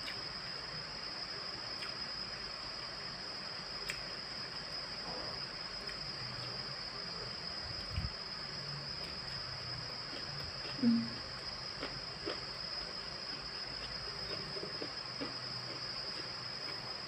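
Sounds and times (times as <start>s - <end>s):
high-pitched whine and hiss: 0.0s - 17.0s
person chewing food: 1.8s - 2.0s, 10.0s - 17.0s.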